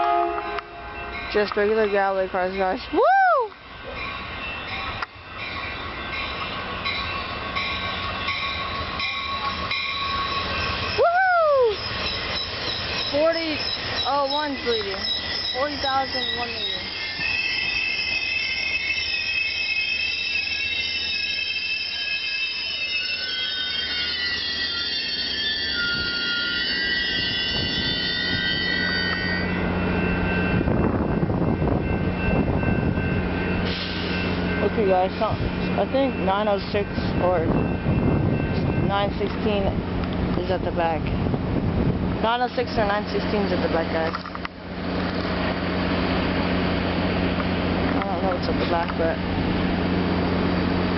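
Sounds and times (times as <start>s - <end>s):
train passing with rolling rumble: 0.0s - 50.9s
person shouting woo: 2.9s - 3.6s, 11.0s - 11.8s.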